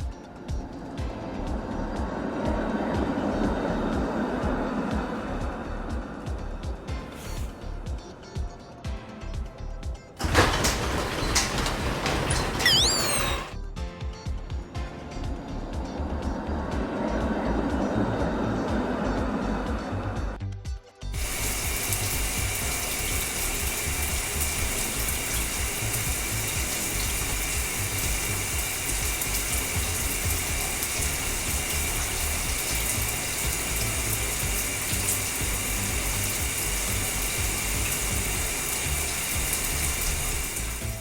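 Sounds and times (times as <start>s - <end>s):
spraying water hiss: 0.0s - 8.0s, 21.2s - 41.0s
mechanical rattle: 10.2s - 13.5s.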